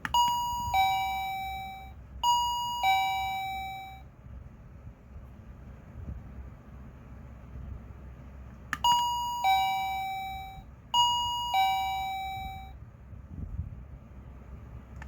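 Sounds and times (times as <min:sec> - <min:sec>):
two-tone doorbell chime: 0:00.1 - 0:04.0, 0:08.8 - 0:12.8.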